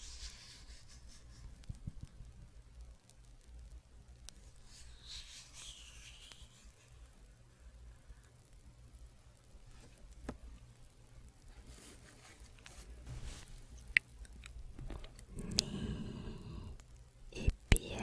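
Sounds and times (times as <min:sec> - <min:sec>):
hands rustling near microphone: 0:11.5 - 0:15.3.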